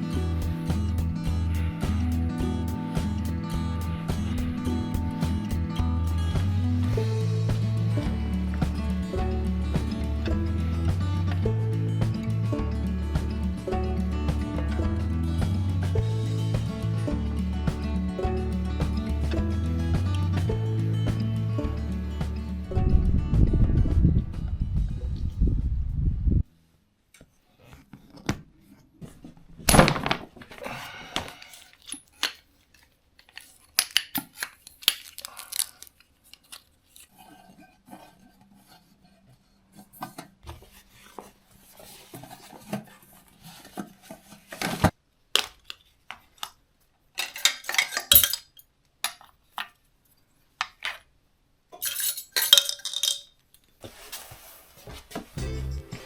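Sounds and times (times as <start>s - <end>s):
dishes and cutlery clattering: 47.2s - 49.3s, 51.8s - 53.4s.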